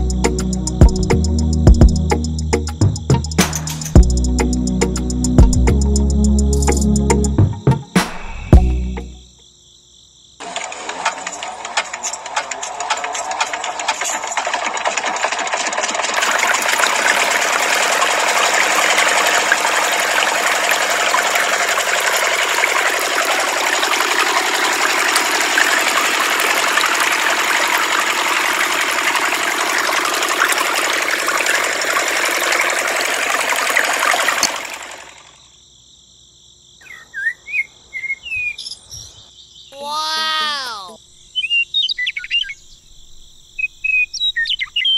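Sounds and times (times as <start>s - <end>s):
small water pump motor whirring: 10.4s - 35.4s
birds chirping: 36.8s - 44.9s.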